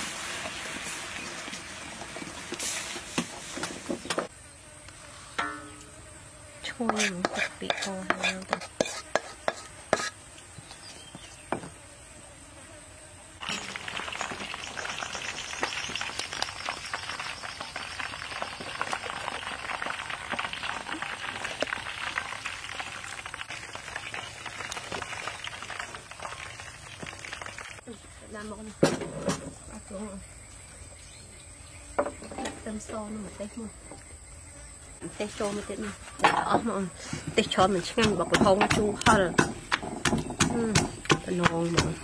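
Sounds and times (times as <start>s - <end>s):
chicken sizzling in hot oil: 0.0s - 3.7s, 13.4s - 27.8s.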